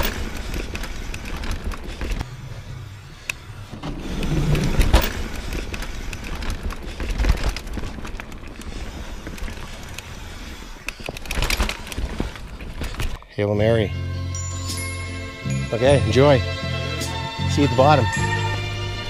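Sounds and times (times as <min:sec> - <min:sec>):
bike clicking and knocking over bumps: 0:00.0 - 0:13.3
bike tyres on dirt trail: 0:00.0 - 0:13.6.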